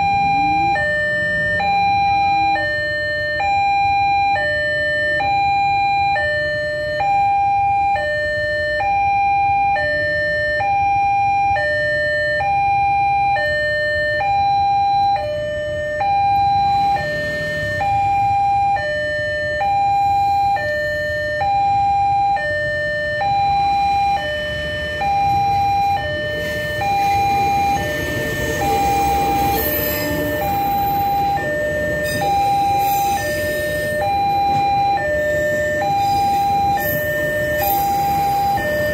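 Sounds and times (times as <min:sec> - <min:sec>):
level crossing two-tone alarm: 0:00.0 - 0:38.9
train rumble: 0:24.2 - 0:38.9.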